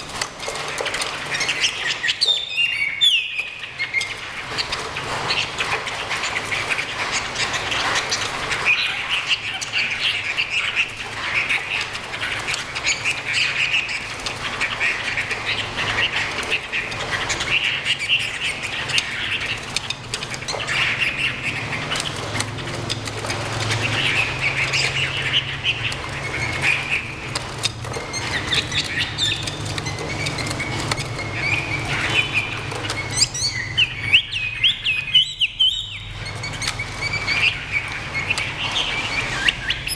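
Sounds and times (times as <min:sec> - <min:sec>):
birds singing whistles and trills: 0:00.0 - 0:39.9.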